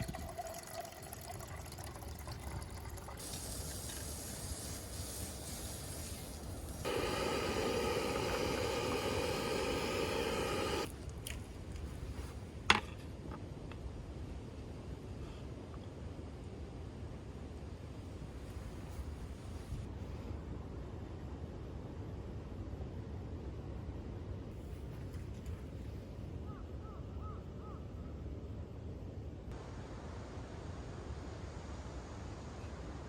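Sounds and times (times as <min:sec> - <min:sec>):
liquid pouring into container: 0:00.0 - 0:04.9
low background hiss: 0:00.0 - 0:33.0.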